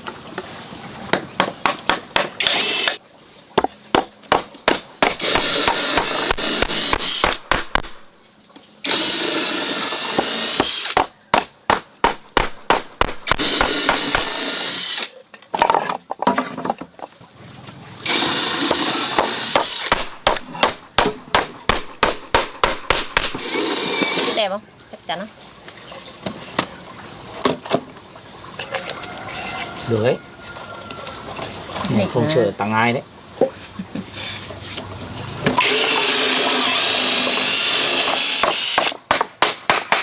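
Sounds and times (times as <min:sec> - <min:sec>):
power tool running: 0:02.4 - 0:03.0, 0:05.0 - 0:08.1, 0:08.8 - 0:11.0, 0:13.2 - 0:15.2, 0:18.0 - 0:20.2, 0:23.2 - 0:24.4, 0:35.6 - 0:39.0.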